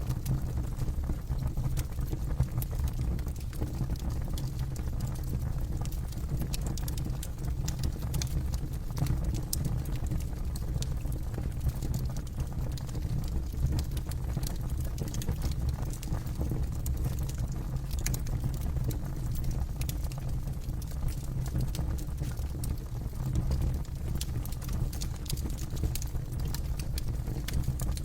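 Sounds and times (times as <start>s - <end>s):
low rumble of burning: 0.0s - 28.0s
fire pops and snaps: 1.8s - 28.0s
campfire crackling: 23.5s - 28.0s.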